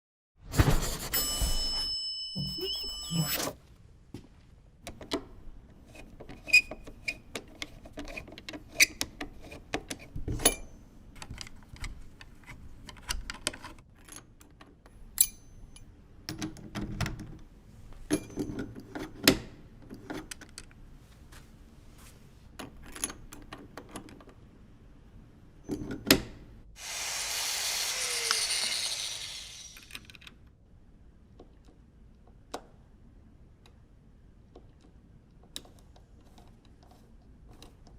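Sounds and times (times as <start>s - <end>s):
hiss: 26.8s - 29.9s.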